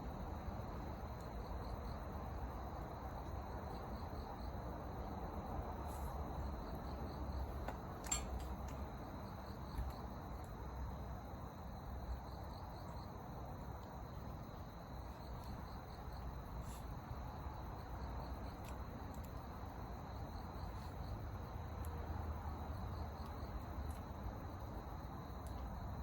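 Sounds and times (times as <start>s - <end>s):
crickets chirping: 0.0s - 26.0s
faint clicks: 18.4s - 19.5s.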